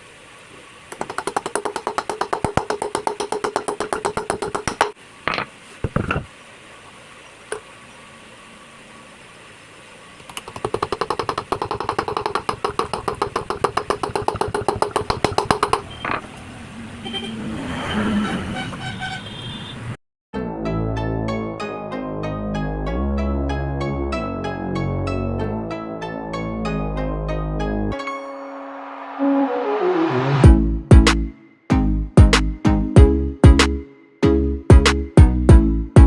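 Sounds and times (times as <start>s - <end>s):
rapid mechanical rattle: 0.9s - 5.0s, 10.3s - 15.9s.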